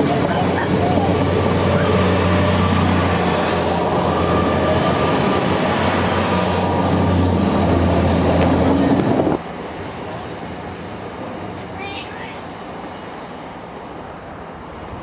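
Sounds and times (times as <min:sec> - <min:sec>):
train rolling past: 0:00.0 - 0:15.0.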